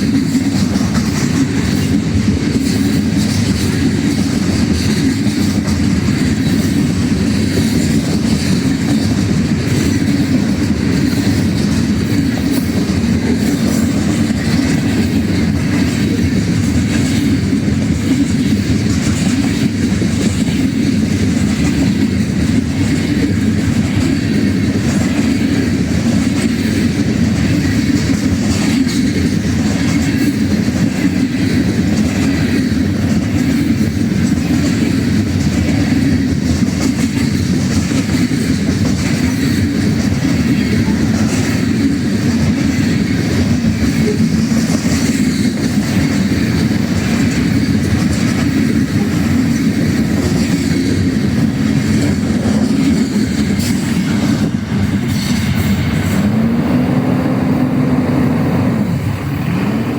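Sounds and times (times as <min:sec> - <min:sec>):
freight train wheels on rails: 0:00.0 - 0:59.9.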